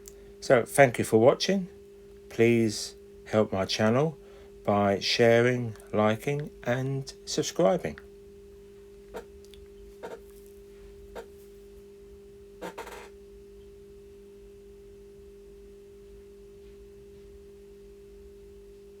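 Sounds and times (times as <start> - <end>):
two-tone steady hum: 0.0 - 19.0.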